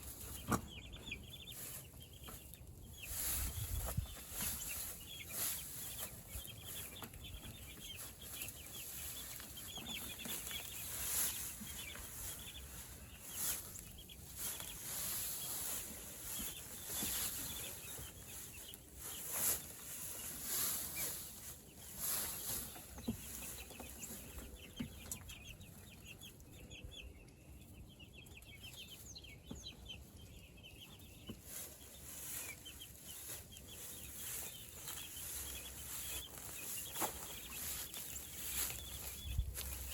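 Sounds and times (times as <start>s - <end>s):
chickens calling: 0.0s - 39.9s.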